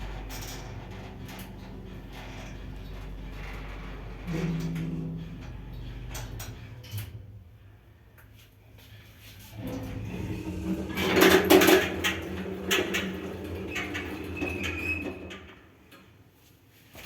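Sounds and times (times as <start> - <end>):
elevator humming: 0.0 - 8.0, 9.5 - 15.8
loud clattering and knocks: 9.6 - 15.6.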